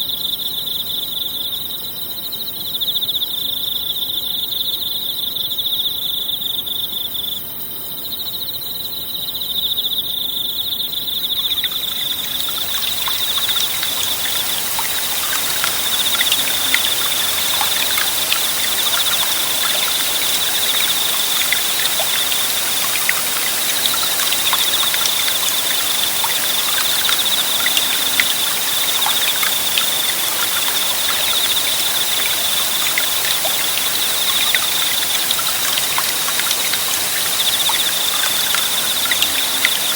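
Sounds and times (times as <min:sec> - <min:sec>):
crickets trilling: 0:09.5 - 0:39.9
forest stream babbling: 0:11.3 - 0:39.9.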